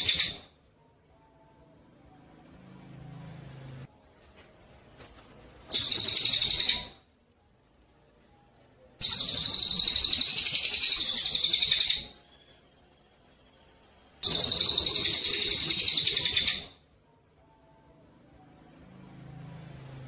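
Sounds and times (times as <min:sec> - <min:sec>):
songbird trilling: 0:05.7 - 0:07.0, 0:09.0 - 0:12.4, 0:14.2 - 0:16.8.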